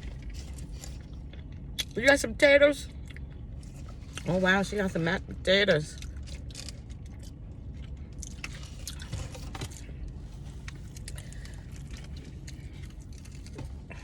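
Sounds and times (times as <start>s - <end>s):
steady low hum: 0.0s - 14.0s
quiet chewing: 6.0s - 14.0s.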